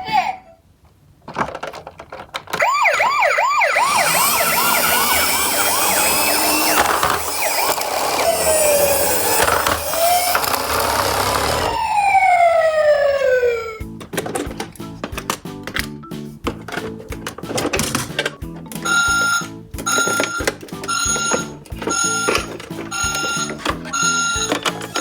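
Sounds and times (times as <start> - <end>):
siren yelping and wailing: 2.6 - 13.8.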